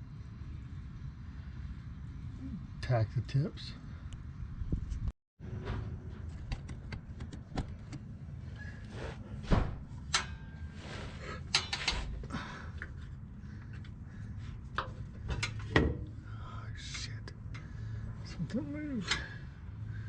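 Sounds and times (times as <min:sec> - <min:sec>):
steady low hum: 0:00.0 - 0:20.0
metal parts and tools clanking: 0:09.9 - 0:12.3, 0:14.7 - 0:16.2, 0:19.0 - 0:19.4.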